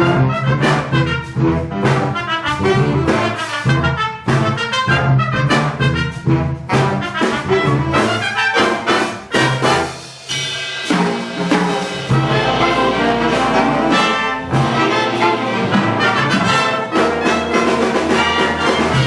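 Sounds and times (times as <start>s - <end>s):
jazz big band with brass: 0.0s - 19.0s.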